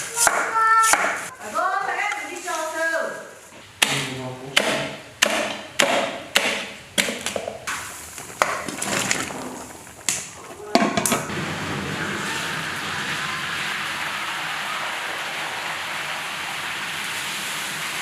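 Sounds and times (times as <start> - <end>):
sharp knocks on hard surface: 3.8 - 7.6
steady hiss: 7.6 - 18.0.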